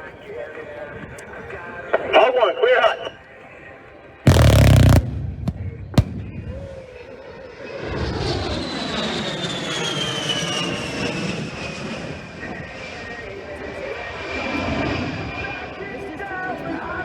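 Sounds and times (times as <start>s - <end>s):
sharp bangs: 4.3s - 6.9s
jet engines passing low: 4.3s - 15.6s.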